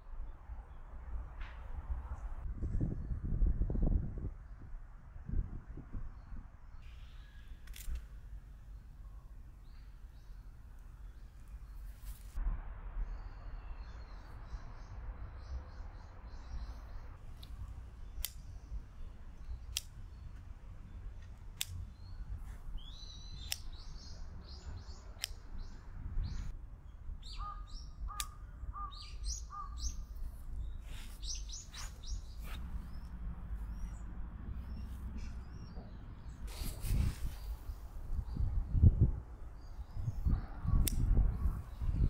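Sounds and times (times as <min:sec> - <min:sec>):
steady low rumble: 0:00.0 - 0:42.0
small birds chirping: 0:06.2 - 0:12.4, 0:13.2 - 0:42.0
sharp clicks: 0:07.6 - 0:08.1, 0:17.4 - 0:18.6, 0:19.6 - 0:20.4, 0:21.2 - 0:22.1, 0:23.4 - 0:23.9, 0:25.1 - 0:25.5, 0:28.2 - 0:28.4, 0:40.8 - 0:41.1.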